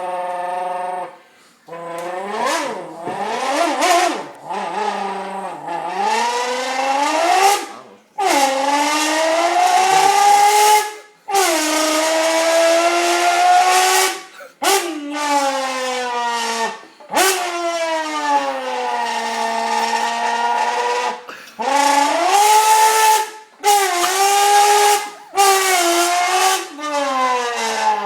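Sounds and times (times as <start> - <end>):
person imitating engine: 9.4 - 23.2, 24.0 - 26.3.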